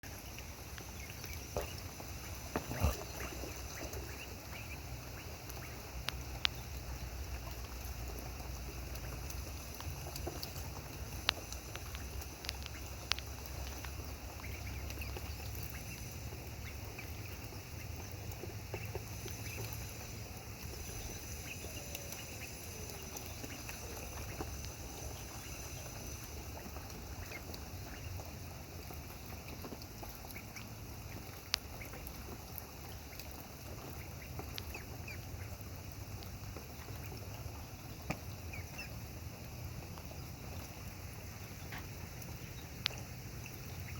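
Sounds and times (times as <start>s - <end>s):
splashing in water: 0.0s - 43.9s
steady background hiss: 0.0s - 43.9s
ducks quacking: 0.9s - 6.6s.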